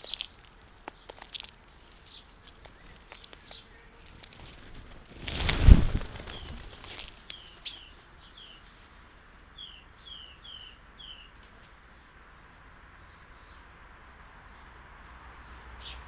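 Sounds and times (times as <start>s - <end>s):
small bird chirping: 0.0s - 4.6s, 6.3s - 8.8s, 9.6s - 12.0s, 15.8s - 16.0s.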